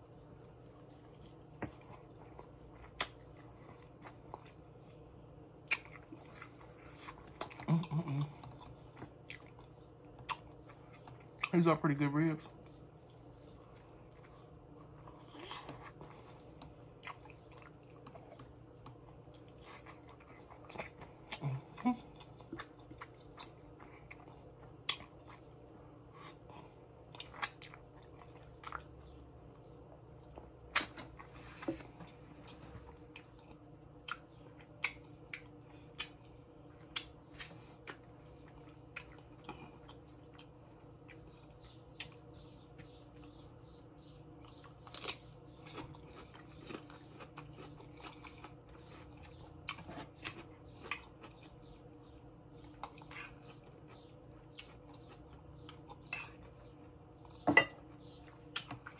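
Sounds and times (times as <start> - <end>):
faint steady hum: 0.0 - 58.9
person chewing and biting: 0.5 - 4.7, 5.6 - 7.7, 44.4 - 51.7.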